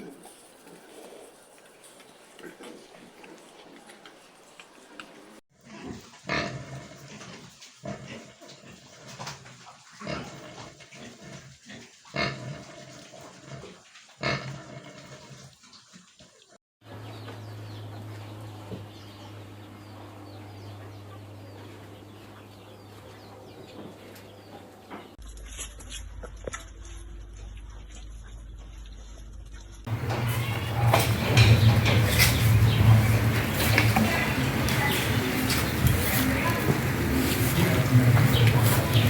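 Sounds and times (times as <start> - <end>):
pigs grunting and squealing: 5.6 - 15.6, 29.9 - 39.0.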